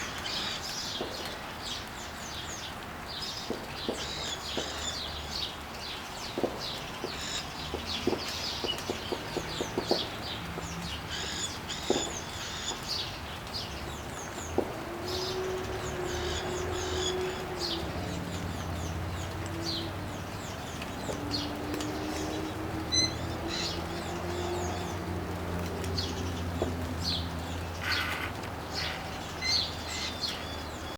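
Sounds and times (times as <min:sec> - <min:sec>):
parrots chirping and squawking: 0:27.8 - 0:30.4.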